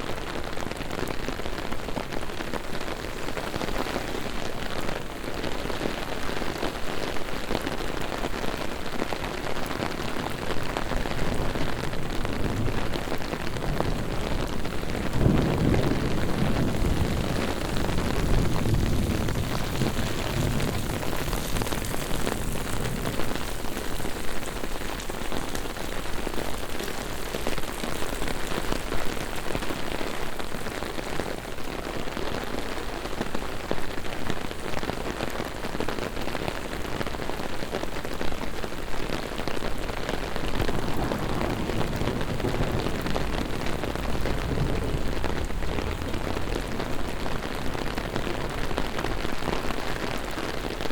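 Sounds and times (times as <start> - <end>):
heavy rain hissing: 1.3 - 34.0, 36.7 - 50.9
low rumble: 40.3 - 48.7.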